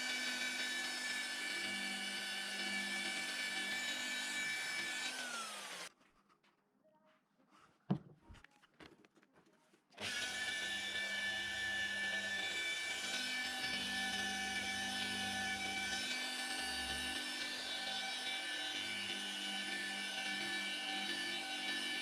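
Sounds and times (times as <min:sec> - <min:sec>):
power tool whining: 0:00.0 - 0:05.9, 0:10.0 - 0:22.0.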